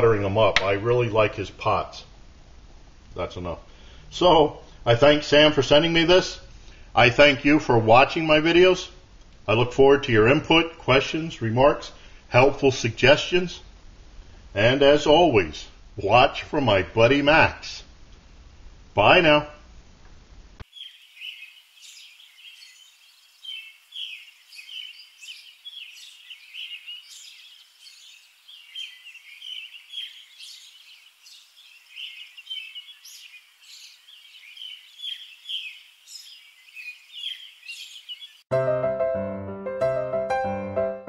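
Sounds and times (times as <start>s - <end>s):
birds chirping: 20.6s - 38.5s.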